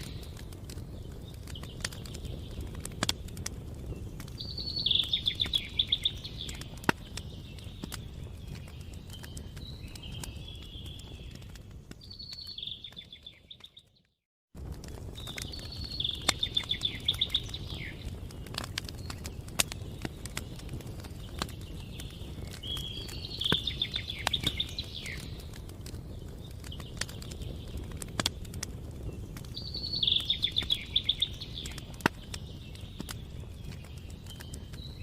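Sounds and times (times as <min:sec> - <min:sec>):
campfire crackling: 0:00.0 - 0:35.0
songbird trilling: 0:04.4 - 0:06.7, 0:15.7 - 0:18.0, 0:29.6 - 0:31.8.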